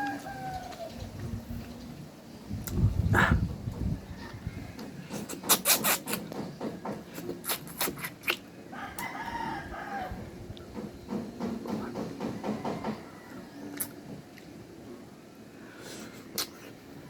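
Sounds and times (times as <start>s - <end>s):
rooster crowing: 0.0s - 1.0s, 8.7s - 10.3s, 12.2s - 13.8s.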